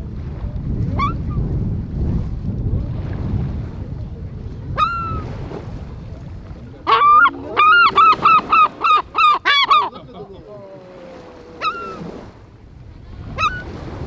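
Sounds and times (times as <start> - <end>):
wind rumble on microphone: 0.0 - 14.0
shorebird calling: 0.9 - 1.5, 4.4 - 14.0.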